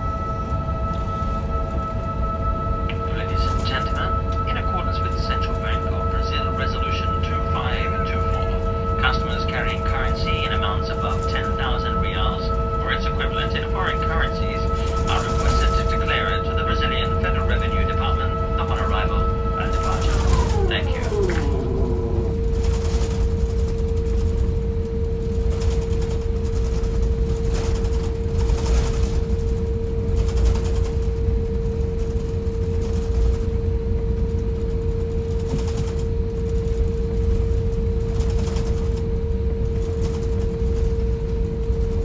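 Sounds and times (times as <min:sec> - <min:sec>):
aircraft cabin rumble: 0:01.0 - 0:23.2.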